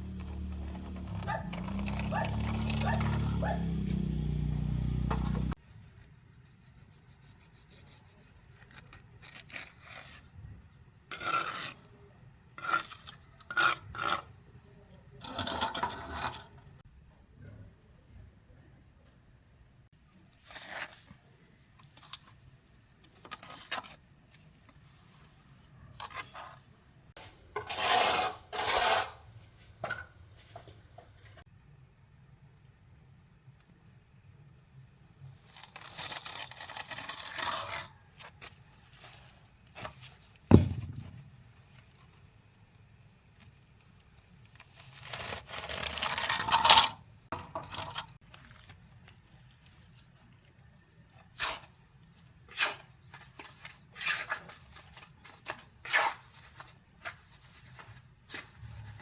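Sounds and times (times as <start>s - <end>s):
scraping and rustling: 0.2s - 4.0s
sharp thump: 40.5s - 41.4s.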